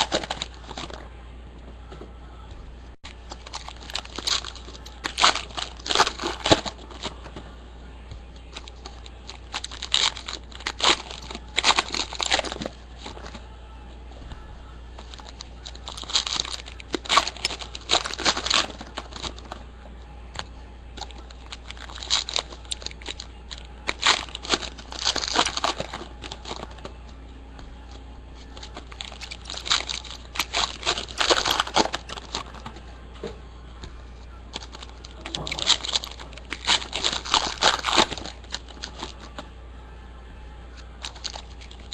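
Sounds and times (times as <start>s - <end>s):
foil wrappers tearing and crinkling: 0.0s - 1.0s, 3.1s - 7.2s, 8.5s - 13.4s, 15.0s - 19.6s, 21.0s - 26.9s, 28.4s - 32.8s, 34.5s - 39.4s, 41.0s - 41.9s.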